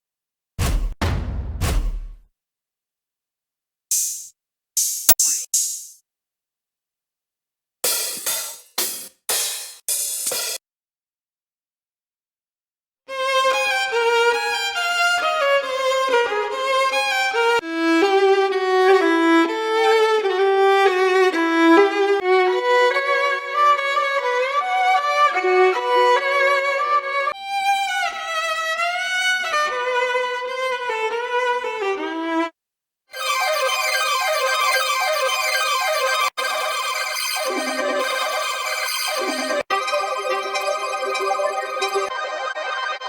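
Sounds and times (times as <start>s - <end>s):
solo violin melody: 13.1s - 32.6s, 37.5s - 42.1s.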